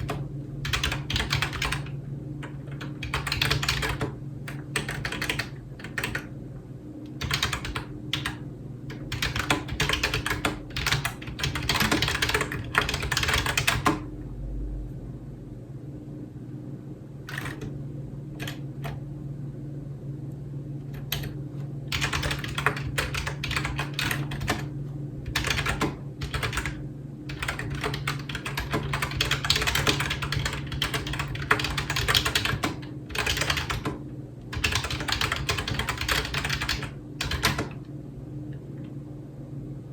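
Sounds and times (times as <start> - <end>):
fast typing on keyboard: 0.0 - 6.3, 7.2 - 14.1, 17.3 - 17.7, 18.4 - 19.0, 21.0 - 37.8
steady low hum: 0.0 - 39.9.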